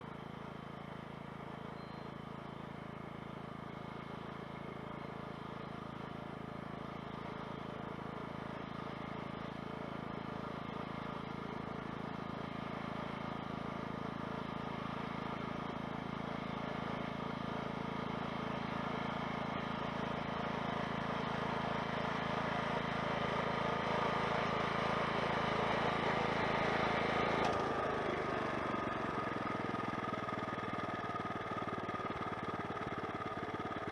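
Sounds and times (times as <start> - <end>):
farm machine engine running: 0.0 - 33.9.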